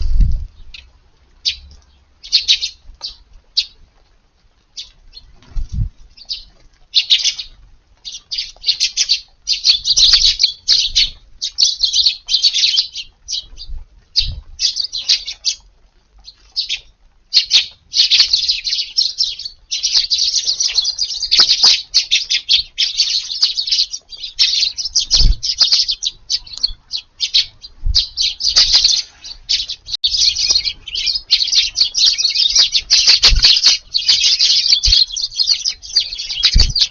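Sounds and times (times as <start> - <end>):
soft low thumps: 0.0 - 0.8
sparrows chirping: 0.0 - 3.9, 4.7 - 36.9.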